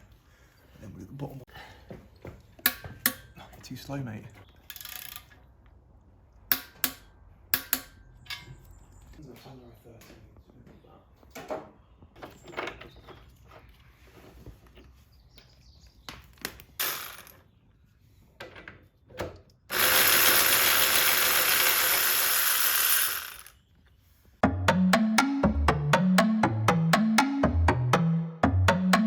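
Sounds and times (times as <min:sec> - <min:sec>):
tool clicks and clunks: 0:02.3 - 0:03.7
ratcheting tool: 0:19.7 - 0:23.6.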